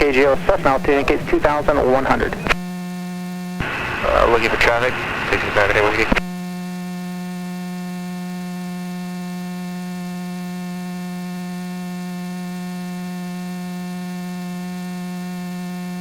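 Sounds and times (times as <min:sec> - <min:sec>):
radio transmissions: 0:00.0 - 0:02.6, 0:03.6 - 0:06.3
steady electrical hum: 0:00.0 - 0:16.0.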